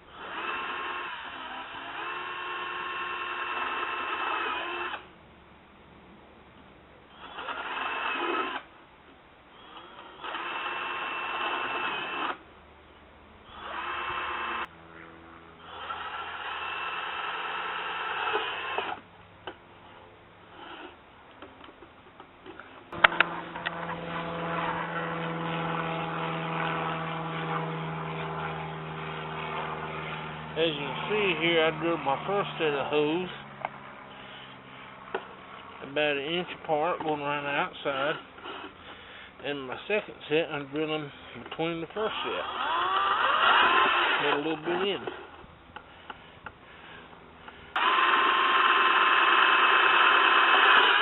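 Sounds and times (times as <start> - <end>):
electric drill boring through metal: 0.1 - 5.0, 7.1 - 8.7, 9.6 - 12.4, 13.5 - 14.7, 15.6 - 19.0, 23.0 - 33.1, 42.0 - 45.1, 47.7 - 51.0
steady low hum: 8.4 - 49.9.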